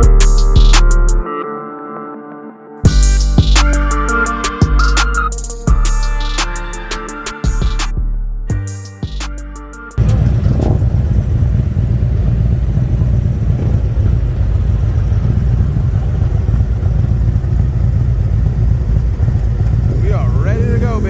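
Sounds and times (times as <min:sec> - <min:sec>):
background music: 0:00.0 - 0:10.0
motorcycle exhaust rumble: 0:10.0 - 0:21.0.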